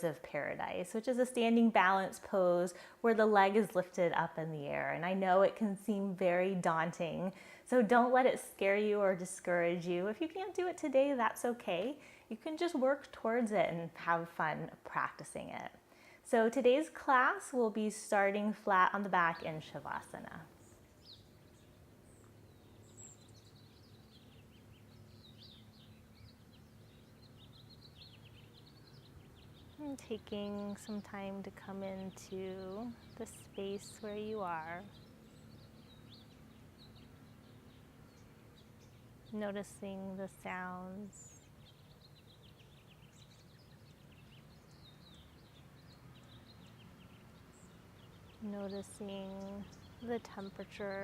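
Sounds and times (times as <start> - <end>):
low steady background noise: 0.0 - 51.0
low steady hum: 0.0 - 51.0
birds chirping: 19.0 - 51.0.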